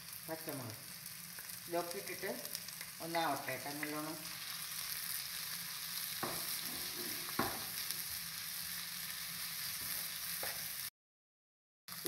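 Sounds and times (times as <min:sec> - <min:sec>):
onions sizzling in oil: 0:00.0 - 0:10.9
spoon knocking against pan: 0:06.2 - 0:07.7.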